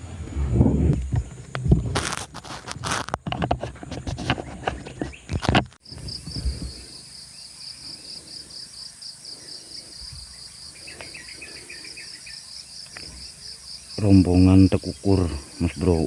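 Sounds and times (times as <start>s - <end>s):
faint outdoor hiss: 0.0s - 16.0s
insect chirping: 1.0s - 16.0s
rustling handling noise: 1.1s - 5.8s.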